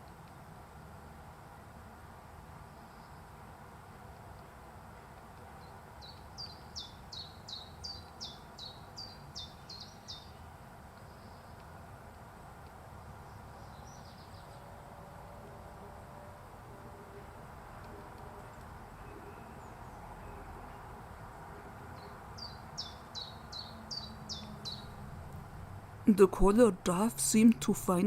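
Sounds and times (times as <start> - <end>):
background hiss: 0.0 - 28.0
songbird singing: 5.6 - 11.8, 12.4 - 16.2, 17.2 - 28.0.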